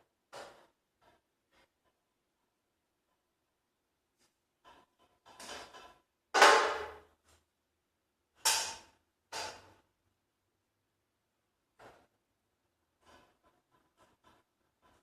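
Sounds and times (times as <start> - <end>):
knocks and clatters: 4.6 - 7.1.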